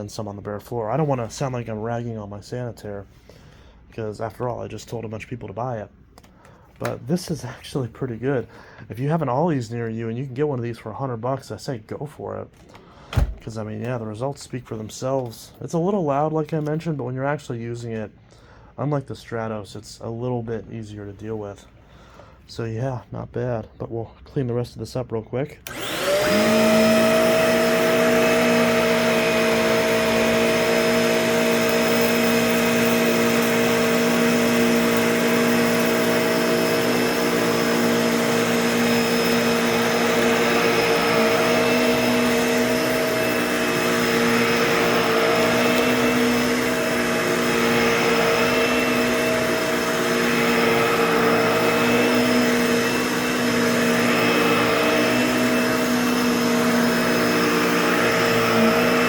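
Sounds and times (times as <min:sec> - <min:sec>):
vacuum cleaner whining: 0:25.6 - 0:59.0.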